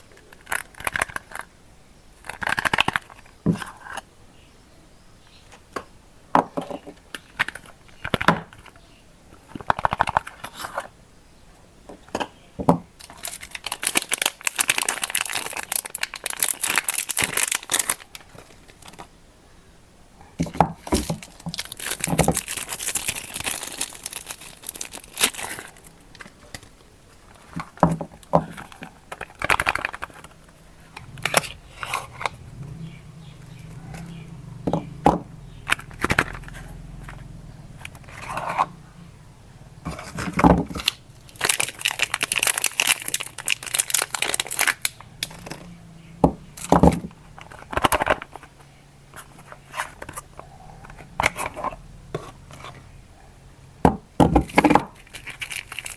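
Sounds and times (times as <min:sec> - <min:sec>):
soap wrappers rustling and crackling: 0:00.0 - 0:04.0, 0:07.1 - 0:10.9, 0:13.0 - 0:19.1, 0:20.5 - 0:32.4, 0:35.5 - 0:38.5, 0:39.9 - 0:45.7, 0:46.5 - 0:52.9, 0:54.3 - 0:55.9
wrapper ripping: 0:13.0 - 0:18.9, 0:21.1 - 0:26.7, 0:40.2 - 0:45.6, 0:54.9 - 0:55.9.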